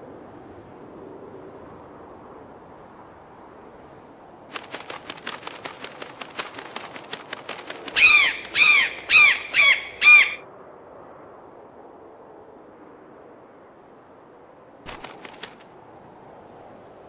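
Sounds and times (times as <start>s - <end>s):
loud bird squawks: 7.9s - 10.4s
rapid light clicks: 14.9s - 15.7s.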